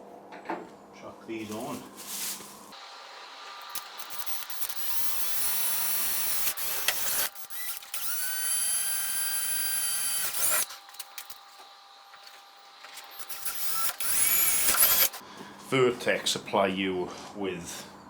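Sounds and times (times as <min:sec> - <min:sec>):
power drill whining: 0:02.8 - 0:15.2.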